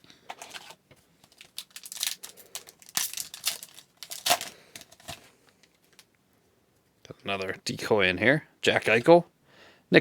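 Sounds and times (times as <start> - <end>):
wrapper crinkling and tearing: 0.3 - 6.1.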